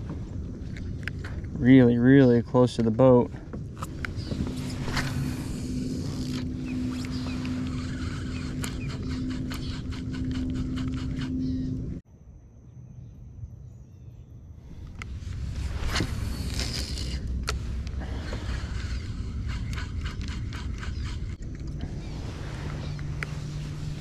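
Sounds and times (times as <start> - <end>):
mechanical hum: 3.4 - 24.0
thin high whine: 4.1 - 12.0.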